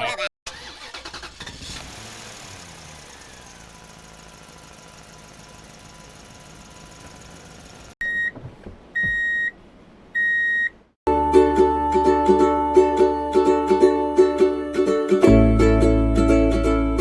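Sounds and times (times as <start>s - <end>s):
short electronic beeps: 8.0s - 8.4s
plucked ukulele music: 11.1s - 17.0s.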